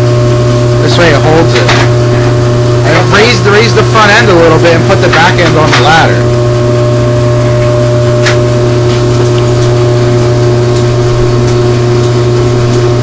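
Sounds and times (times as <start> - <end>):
shop heater droning: 0.0 - 13.0.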